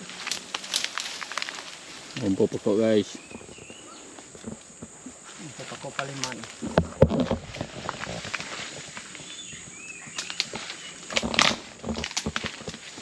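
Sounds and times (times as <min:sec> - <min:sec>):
footsteps through leaf litter: 0:00.0 - 0:03.3.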